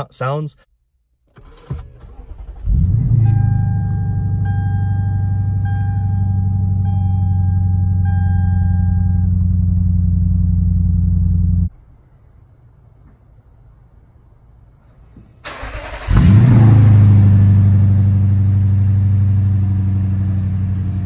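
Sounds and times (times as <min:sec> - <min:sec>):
car engine starting and idling: 0:01.2 - 0:14.8, 0:15.4 - 0:21.0
dashboard warning chime beeping: 0:03.1 - 0:09.4.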